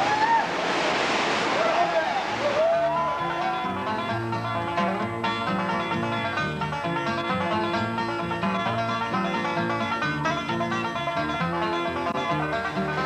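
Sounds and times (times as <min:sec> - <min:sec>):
fast bluegrass banjo music: 0:03.1 - 0:13.0.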